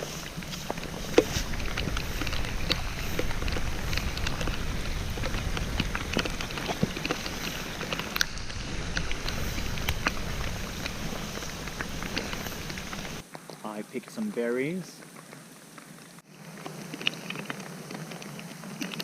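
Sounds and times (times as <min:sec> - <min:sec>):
heavy rain falling: 0:00.0 - 0:13.2
low rumble: 0:00.0 - 0:13.2.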